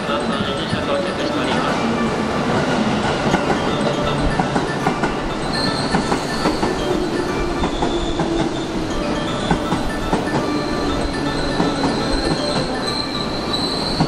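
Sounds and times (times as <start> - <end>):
train rumble: 0.0 - 14.0
high squeal: 5.4 - 14.0.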